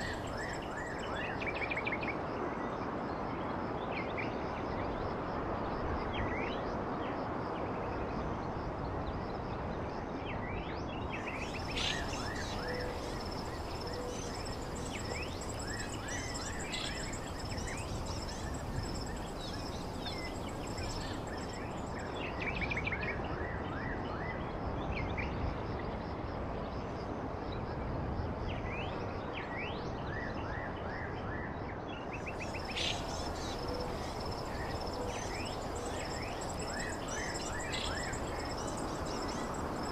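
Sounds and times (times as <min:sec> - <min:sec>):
background hiss: 0:00.0 - 0:01.4, 0:11.2 - 0:22.2, 0:32.4 - 0:39.9
small birds chirping: 0:00.0 - 0:01.4, 0:11.2 - 0:22.3, 0:32.3 - 0:39.9.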